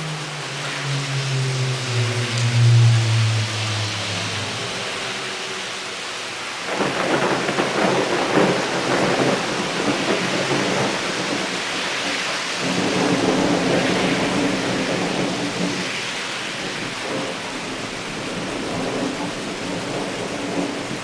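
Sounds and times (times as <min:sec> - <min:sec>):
torrential rain hissing: 0:00.0 - 0:21.0
rolling thunder rumble: 0:06.4 - 0:21.0.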